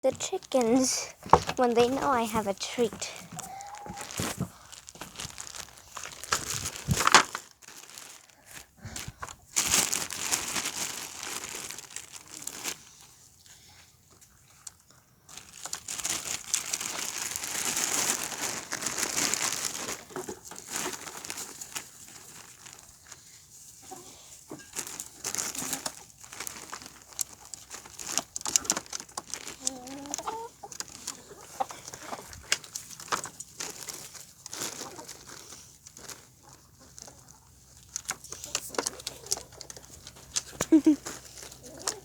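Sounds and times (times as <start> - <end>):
plastic bag crinkling: 0.0 - 13.0, 15.3 - 42.0.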